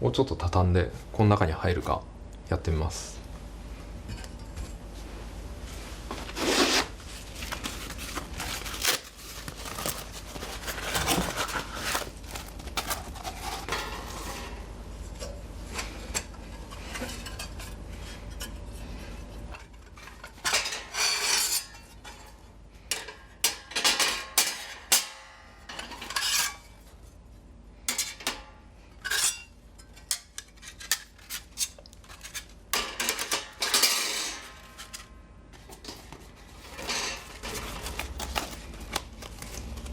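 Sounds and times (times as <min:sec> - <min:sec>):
metal scraping on metal: 0:20.5 - 0:21.9.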